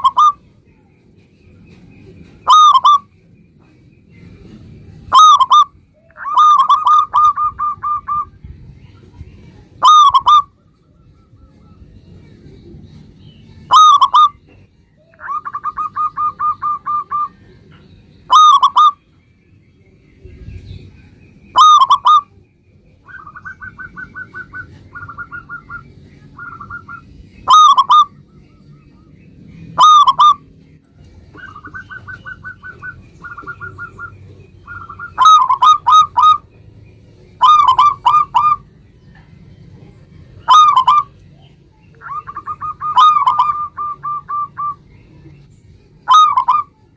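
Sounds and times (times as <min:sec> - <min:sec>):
dove cooing and trilling: 0:00.0 - 0:00.4, 0:02.4 - 0:03.1, 0:05.0 - 0:08.5, 0:09.8 - 0:12.0, 0:13.6 - 0:17.7, 0:18.3 - 0:19.0, 0:21.5 - 0:29.1, 0:29.8 - 0:30.6, 0:31.3 - 0:36.6, 0:37.4 - 0:38.7, 0:40.4 - 0:45.4, 0:46.0 - 0:46.9.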